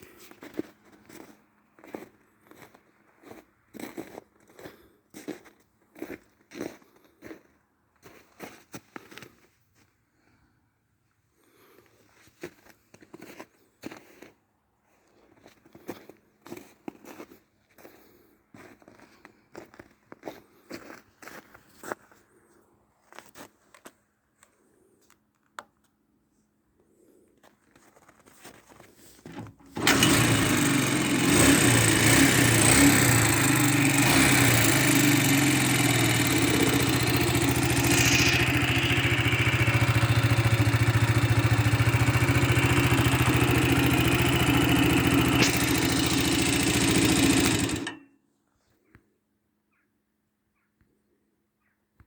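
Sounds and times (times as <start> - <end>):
motorcycle engine running: 29.3 - 48.0.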